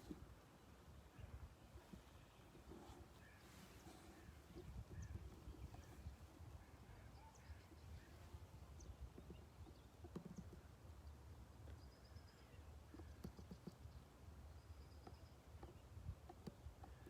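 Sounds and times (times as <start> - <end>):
soft clicks and knocks: 7.5 - 10.8, 12.8 - 14.0, 14.8 - 17.0.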